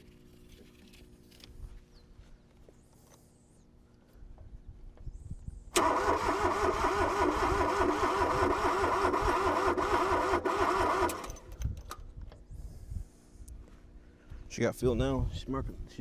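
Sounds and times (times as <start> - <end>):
starter cranking diesel engine: 5.8 - 11.6.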